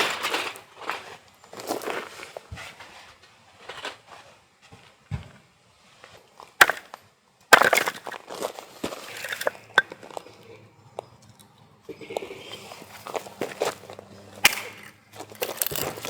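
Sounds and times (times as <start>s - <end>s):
wood cracking and splintering: 6.6s - 6.9s, 7.5s - 10.0s, 15.4s - 16.0s.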